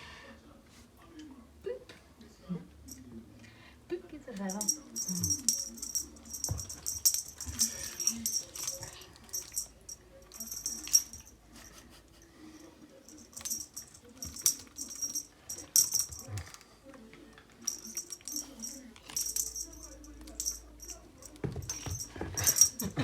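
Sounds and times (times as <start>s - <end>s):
cat toy rattling: 4.4s - 12.0s, 13.1s - 16.6s, 17.6s - 23.0s.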